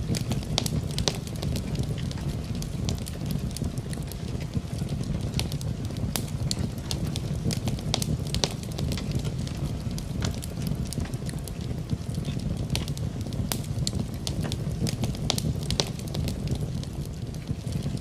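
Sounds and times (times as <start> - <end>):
fireplace fire crackling: 0.0 - 18.0
rain hissing: 0.0 - 18.0.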